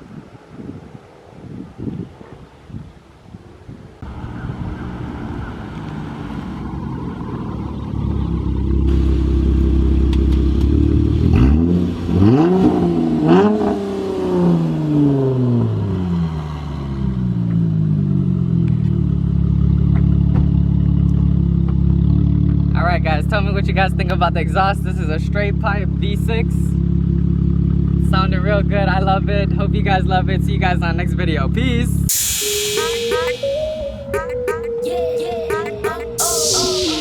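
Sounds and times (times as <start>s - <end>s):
car engine idling and revving: 4.0s - 32.4s.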